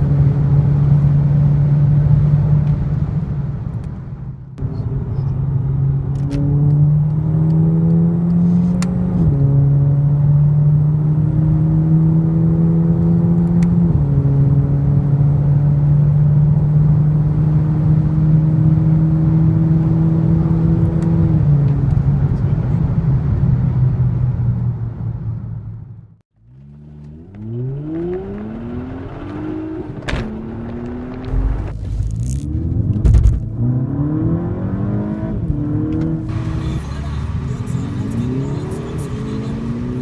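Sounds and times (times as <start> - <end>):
car engine accelerating hard: 26.4 - 40.0.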